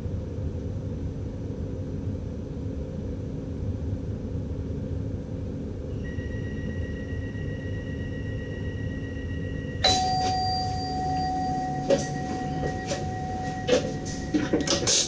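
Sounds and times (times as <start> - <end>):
bell-like chime: 6.0 - 15.0
train cab rumble: 9.7 - 15.0.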